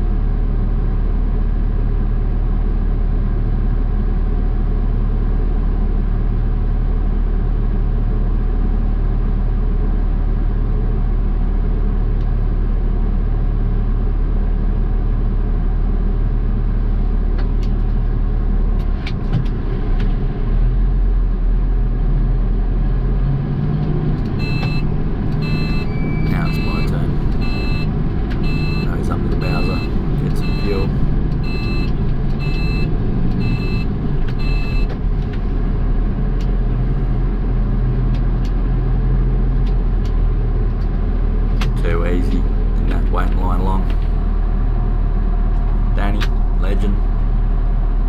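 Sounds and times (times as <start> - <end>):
diesel engine idling: 24.0 - 48.0
reversing beeper beeping: 24.4 - 34.9.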